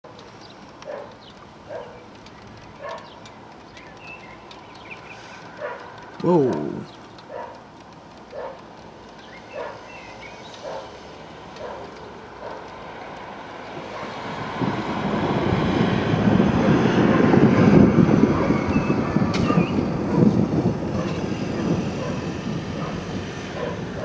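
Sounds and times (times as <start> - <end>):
thunder rumbling: 14.3 - 24.0.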